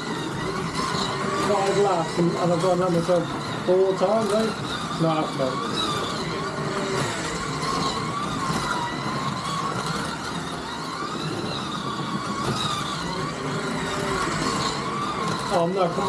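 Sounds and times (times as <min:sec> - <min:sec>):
slot car motors whining: 0:00.0 - 0:16.0.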